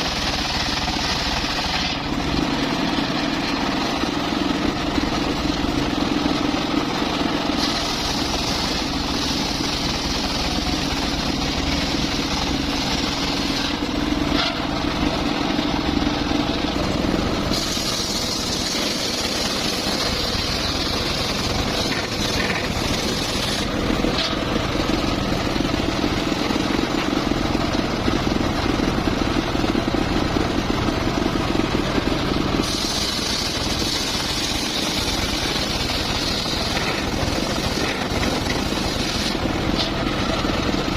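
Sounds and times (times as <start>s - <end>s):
saw blade cutting wood: 0.0s - 14.8s, 17.4s - 24.5s, 32.5s - 40.1s
circular saw motor hum: 4.2s - 23.8s.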